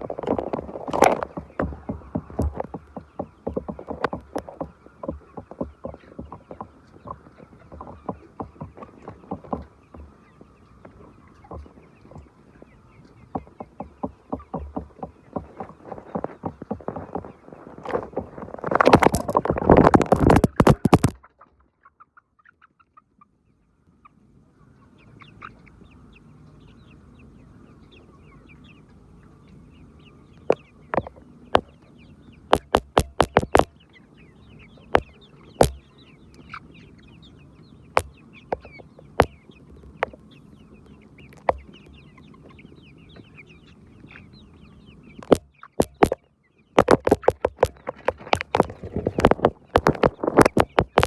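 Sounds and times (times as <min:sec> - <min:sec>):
sharp taps: 0:00.0 - 0:10.1, 0:10.8 - 0:12.3, 0:13.3 - 0:21.2, 0:30.5 - 0:31.7, 0:32.5 - 0:33.7, 0:34.9 - 0:35.8, 0:38.0 - 0:39.4, 0:41.3 - 0:41.7, 0:45.2 - 0:46.2, 0:46.8 - 0:51.0
chickens clucking: 0:00.0 - 0:51.0.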